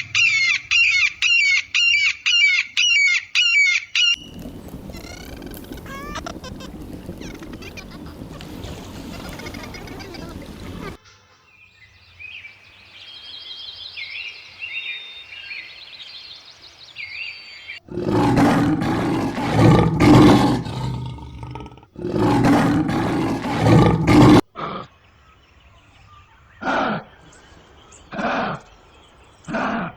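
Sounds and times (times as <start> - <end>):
big cat roaring: 4.2 - 11.0, 17.9 - 24.4
birds chirping faintly: 4.2 - 11.0, 13.0 - 24.4.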